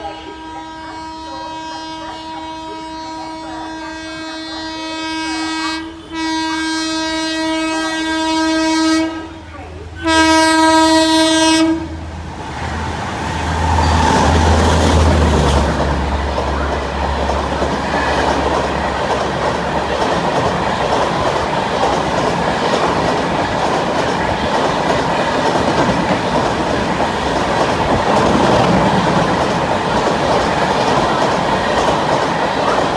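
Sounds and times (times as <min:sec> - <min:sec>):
train horn blast: 0:00.0 - 0:12.1
train wagons clattering by: 0:12.3 - 0:32.9.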